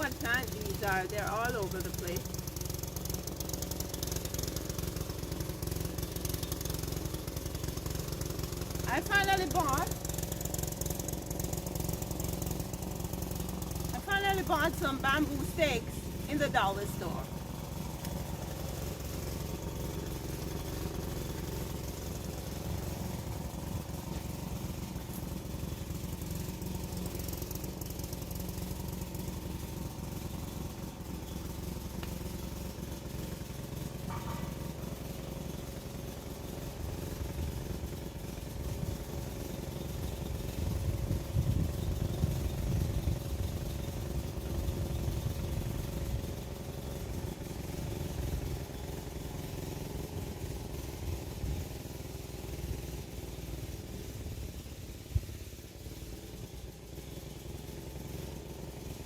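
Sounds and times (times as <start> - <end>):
engine running: 0.0 - 59.0.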